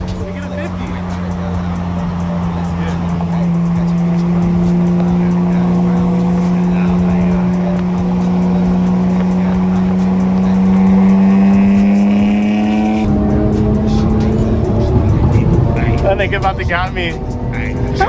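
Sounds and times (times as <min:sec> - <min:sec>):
car engine revving high: 0:00.0 - 0:18.0.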